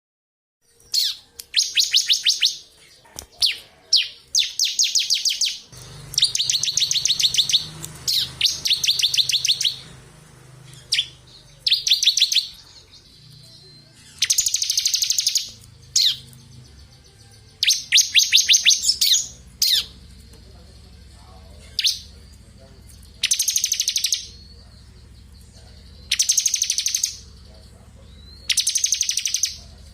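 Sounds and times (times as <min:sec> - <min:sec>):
sharp bird call notes: 0:03.4 - 0:10.0, 0:10.6 - 0:16.3, 0:17.6 - 0:20.0, 0:26.0 - 0:27.4
bird rattling trills: 0:04.4 - 0:09.9.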